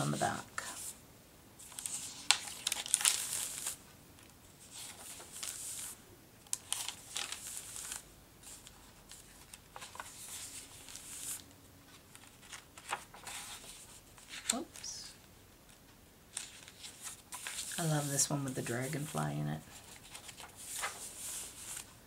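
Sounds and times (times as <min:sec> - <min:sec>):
paper pages rustling: 0:01.6 - 0:22.0.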